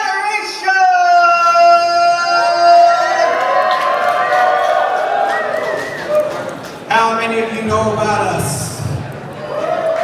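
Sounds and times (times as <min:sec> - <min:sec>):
crowd noise: 0:00.0 - 0:10.0.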